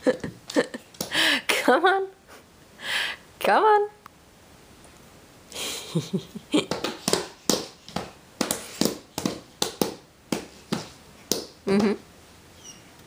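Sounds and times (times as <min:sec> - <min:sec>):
hands patting on floor mat: 0:06.6 - 0:12.0.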